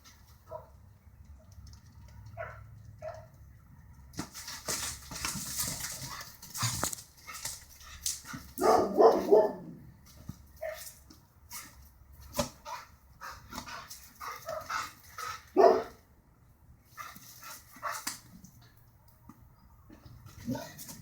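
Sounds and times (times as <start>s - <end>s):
dog barking: 0.5s - 0.8s, 2.4s - 3.3s, 8.6s - 9.8s, 10.6s - 10.9s, 14.2s - 14.8s, 15.5s - 16.0s
rustling: 4.1s - 15.9s.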